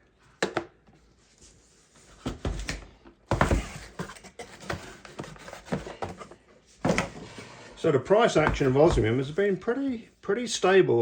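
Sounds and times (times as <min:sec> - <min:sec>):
packs rustling and scraping: 0:02.2 - 0:09.5.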